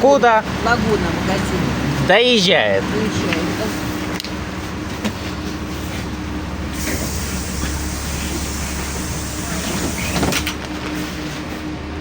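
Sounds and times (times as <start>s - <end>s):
bus engine idling: 0.0s - 12.0s
air hiss of bus doors: 5.5s - 11.3s.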